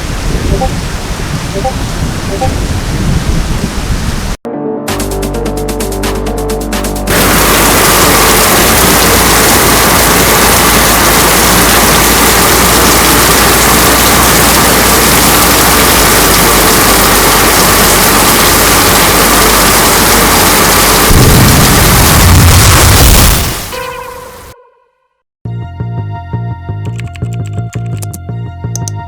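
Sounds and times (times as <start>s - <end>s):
heavy rain pouring: 0.0s - 4.4s, 7.0s - 24.6s.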